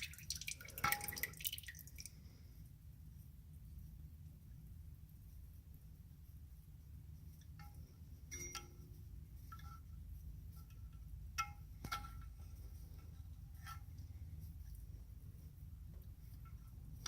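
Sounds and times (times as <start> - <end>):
low steady hum: 0.0 - 17.0
metallic clinks with ringing tone: 8.3 - 9.0.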